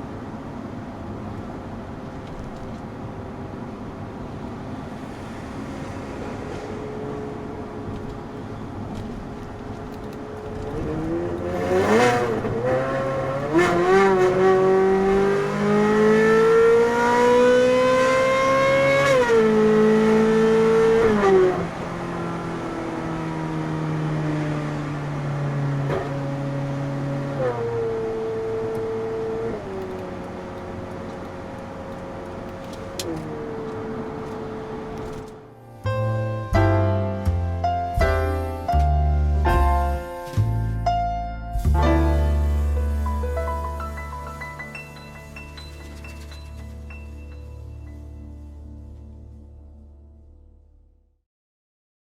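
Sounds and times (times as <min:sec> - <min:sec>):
car engine revving: 0:03.6 - 0:35.8.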